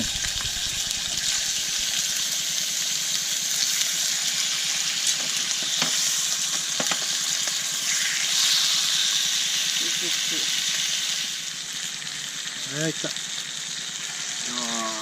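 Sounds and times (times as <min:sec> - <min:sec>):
crackling pops: 0:00.0 - 0:01.4
food sizzling in a pan: 0:00.0 - 0:15.0.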